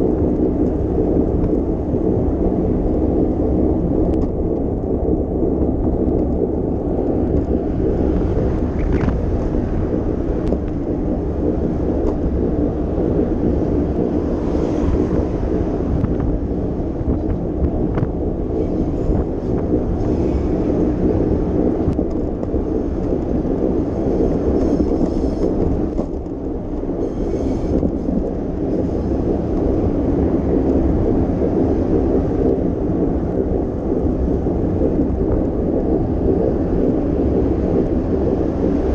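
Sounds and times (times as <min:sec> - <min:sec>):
wind buffeting microphone: 0:00.0 - 0:38.9
bicycle tyre noise: 0:05.4 - 0:34.3.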